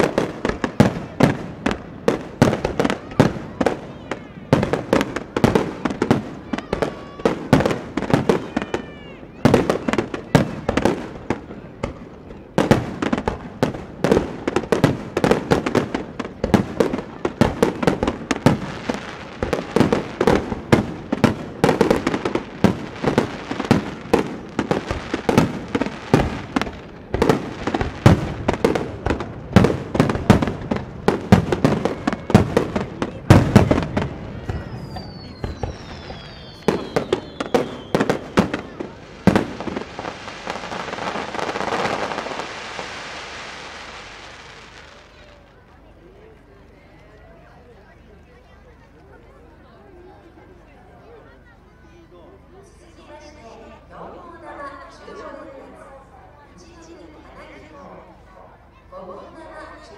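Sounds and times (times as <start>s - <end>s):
fireworks falling whistles: 0.0s - 45.7s
fireworks bursting: 0.0s - 46.6s.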